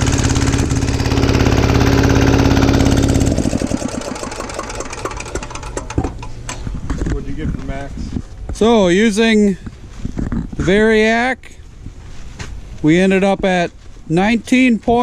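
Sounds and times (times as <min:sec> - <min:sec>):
diesel generator engine running: 0:00.0 - 0:06.6
irregular knocks and clatter: 0:04.2 - 0:07.6.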